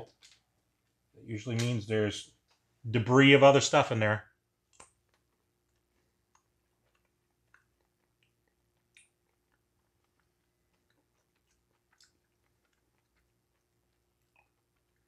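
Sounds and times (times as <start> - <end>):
man chewing: 4.6 - 15.0.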